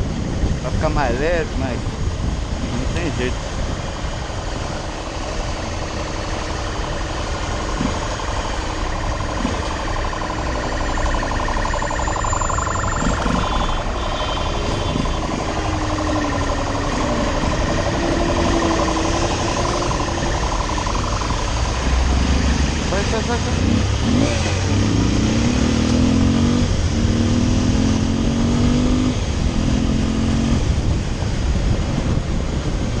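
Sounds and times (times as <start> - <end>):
wind rushing: 0.0 - 23.0
vehicle engines: 0.0 - 33.0
rising and falling tone: 6.1 - 30.4.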